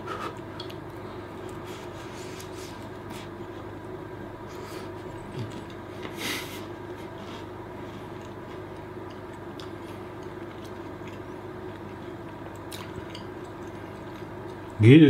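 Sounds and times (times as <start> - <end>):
person chewing crunchy food: 7.4 - 14.8.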